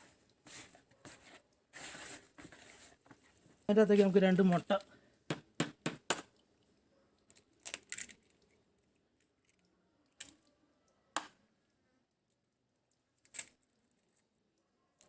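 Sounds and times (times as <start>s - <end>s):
eggs cracking on a bowl: 7.2s - 10.5s.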